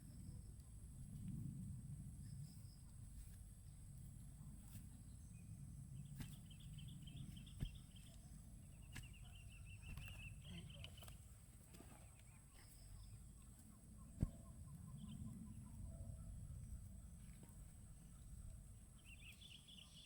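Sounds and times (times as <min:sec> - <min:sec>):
faint low rumble: 0:00.0 - 0:20.0.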